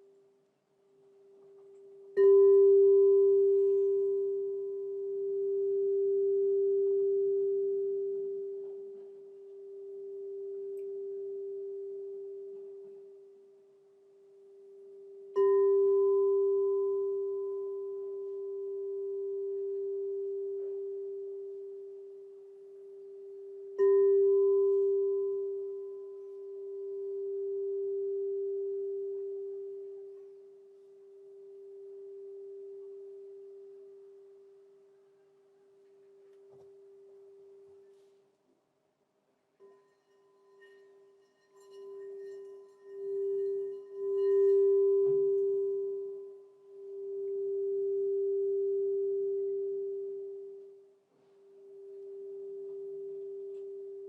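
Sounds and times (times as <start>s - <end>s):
crystal singing bowl ringing: 1.4s - 34.9s, 39.6s - 54.0s.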